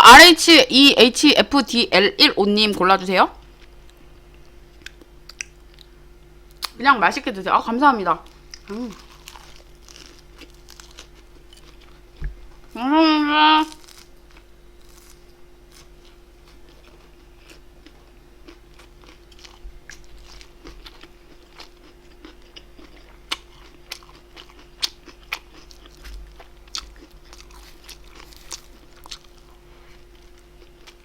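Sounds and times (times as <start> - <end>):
faint steady hum: 0.0 - 31.0
chewing and biting food: 8.5 - 12.6, 13.8 - 31.0.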